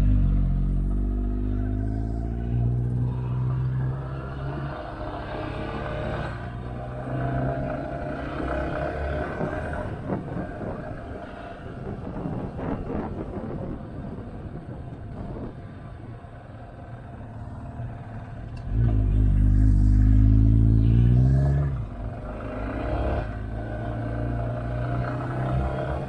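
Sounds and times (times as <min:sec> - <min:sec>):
wind noise: 0:08.6 - 0:16.5
motorcycle engine revving: 0:17.0 - 0:26.0.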